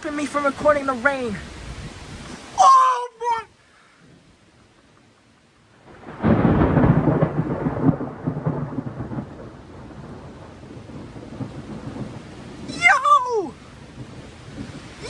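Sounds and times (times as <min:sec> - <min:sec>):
steady rain: 0:00.0 - 0:15.0
thunder crack and rumble: 0:05.8 - 0:13.0, 0:13.8 - 0:15.0.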